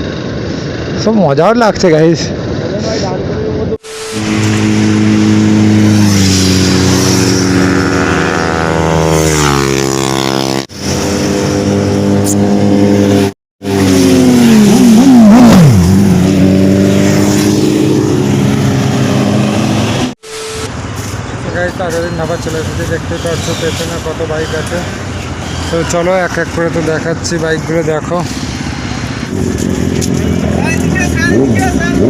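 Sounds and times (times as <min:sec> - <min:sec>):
motorcycle engine revving: 0:03.9 - 0:20.7, 0:21.5 - 0:32.0.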